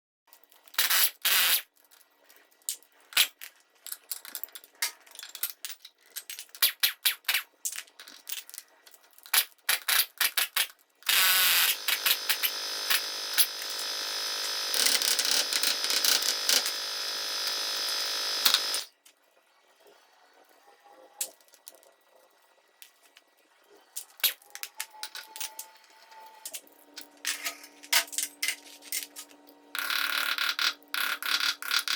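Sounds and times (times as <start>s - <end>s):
power tool running: 11.1s - 18.9s.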